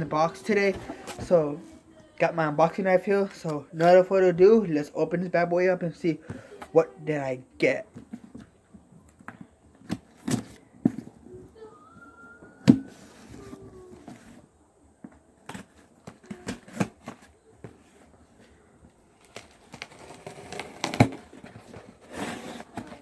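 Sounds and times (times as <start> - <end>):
tape and cardboard tearing: 15.4 - 17.3, 19.1 - 23.0
utility knife cutting cardboard: 19.3 - 21.3, 22.0 - 23.0.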